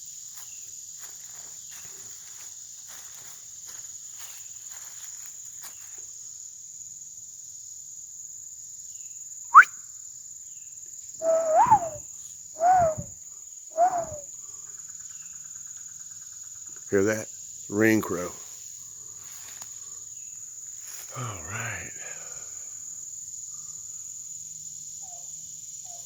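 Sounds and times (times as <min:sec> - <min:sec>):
insects droning: 0:00.0 - 0:26.0
footsteps through leaf litter: 0:00.3 - 0:06.0
cuckoo calling: 0:11.2 - 0:12.0, 0:12.6 - 0:13.1, 0:13.8 - 0:14.2
sharp rising squeak: 0:11.2 - 0:12.0, 0:12.6 - 0:13.1, 0:13.8 - 0:14.2.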